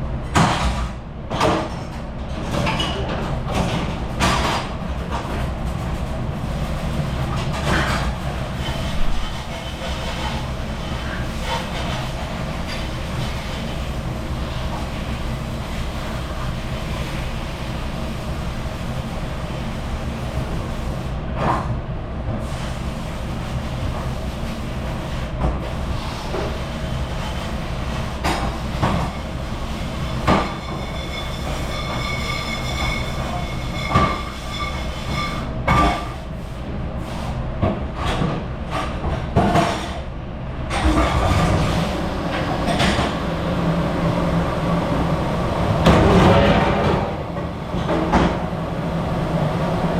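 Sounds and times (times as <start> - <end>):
dish machine rumbling: 0.0 - 20.8, 37.5 - 49.9
dishes and racks clattering: 0.4 - 5.5, 7.3 - 13.9, 38.0 - 40.0, 40.7 - 43.3.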